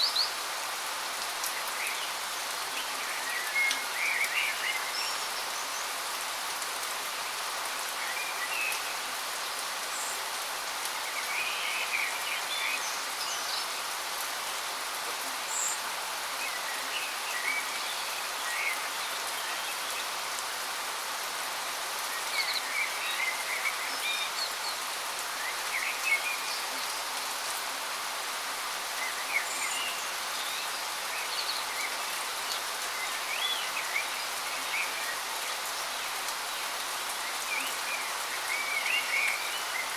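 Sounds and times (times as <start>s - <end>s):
waterfall hiss: 0.0s - 39.9s
small birds chirping: 21.5s - 39.9s.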